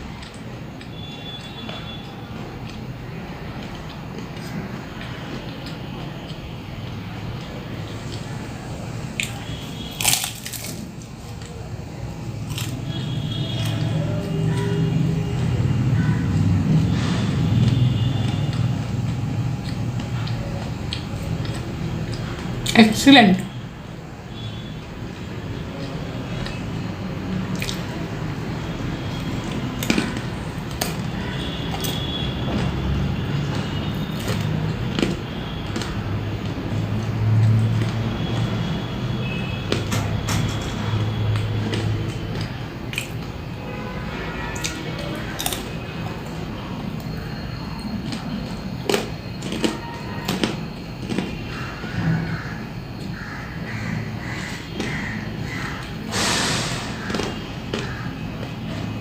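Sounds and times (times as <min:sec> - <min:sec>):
crunchy pastry chewing: 0:00.2 - 0:22.8, 0:27.4 - 0:39.9, 0:40.9 - 0:43.4, 0:44.5 - 0:52.4
sharp crunches: 0:09.2 - 0:10.9.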